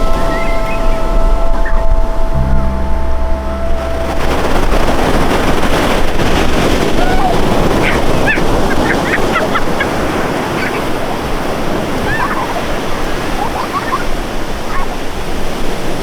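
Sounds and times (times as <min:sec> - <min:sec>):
engine-like drone: 0:00.0 - 0:06.2
short high chirps: 0:02.3 - 0:05.0
sea waves breaking on shore: 0:03.9 - 0:16.0.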